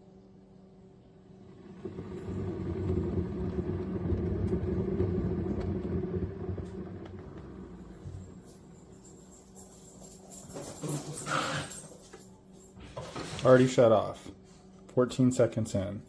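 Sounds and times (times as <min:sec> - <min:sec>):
coffee maker pump gurgling: 0:01.0 - 0:10.2.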